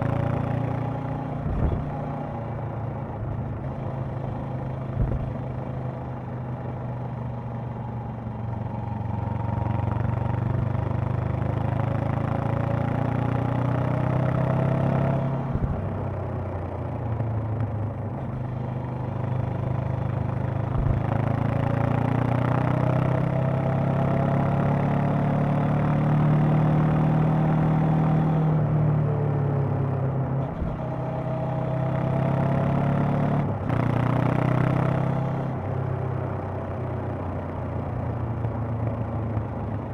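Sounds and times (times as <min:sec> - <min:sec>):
motorcycle engine revving: 0:00.0 - 0:02.4, 0:30.4 - 0:36.5.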